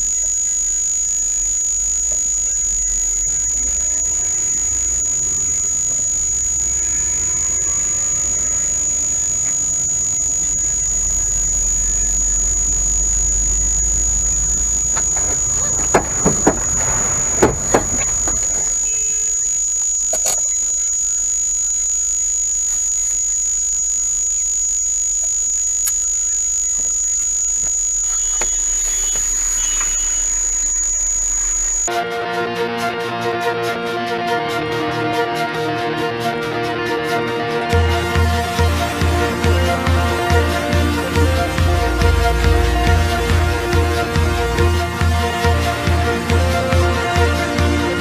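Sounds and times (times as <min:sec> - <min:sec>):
road and engine rumble: 0:00.0 - 0:31.9, 0:37.9 - 0:48.0
high-pitched whine: 0:00.0 - 0:48.0
loud collision bangs: 0:15.2 - 0:18.8.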